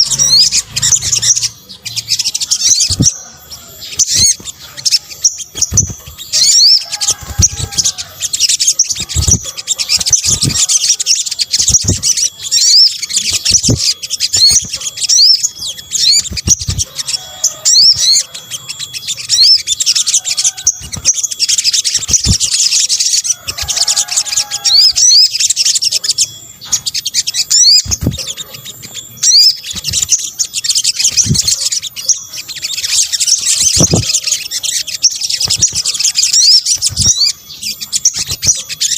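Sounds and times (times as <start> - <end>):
lower bird calls: 0.0 - 38.9
sunbird twittering chirps: 0.0 - 38.9.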